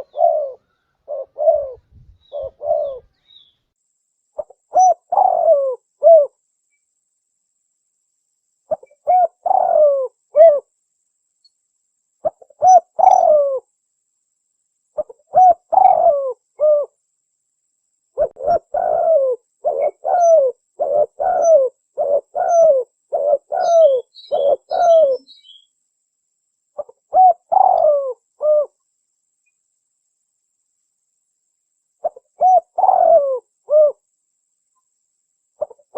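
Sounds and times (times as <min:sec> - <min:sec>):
dove cooing: 0:00.0 - 0:03.2, 0:04.4 - 0:06.4, 0:08.7 - 0:10.7, 0:12.2 - 0:13.6, 0:15.0 - 0:17.0, 0:18.2 - 0:25.6, 0:26.8 - 0:28.8, 0:32.0 - 0:34.0, 0:35.6 - 0:35.9
faint high bird chirps: 0:00.0 - 0:06.9, 0:08.6 - 0:10.7, 0:12.2 - 0:13.7, 0:14.9 - 0:17.0, 0:18.1 - 0:25.8, 0:26.7 - 0:28.8, 0:29.4 - 0:29.7, 0:32.0 - 0:35.9.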